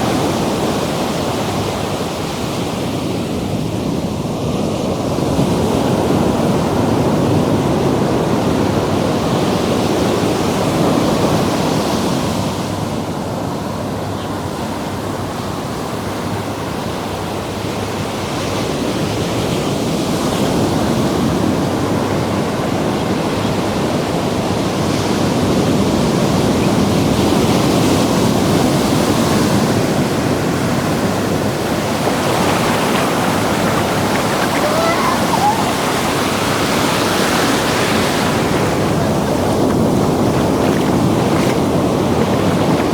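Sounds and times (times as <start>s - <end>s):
ocean surf washing in: 29.0s - 42.9s.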